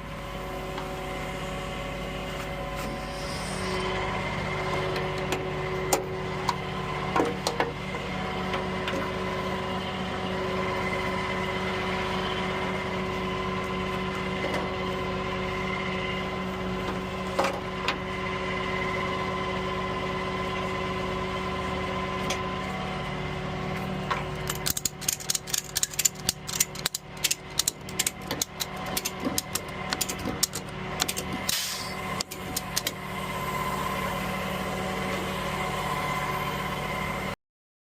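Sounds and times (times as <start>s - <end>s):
truck engine running: 0.0s - 37.3s
rapid clicking and rattling: 24.4s - 31.6s.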